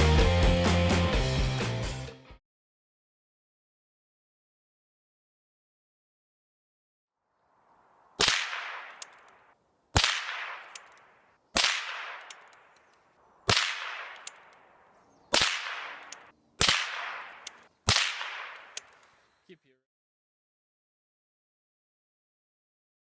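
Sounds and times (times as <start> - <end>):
suppressed rifle shots: 8.2 - 12.8, 13.5 - 19.2.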